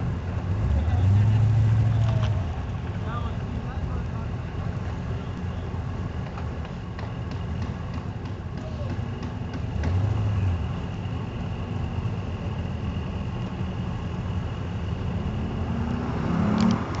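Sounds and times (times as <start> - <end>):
car engine accelerating hard: 15.1 - 17.0.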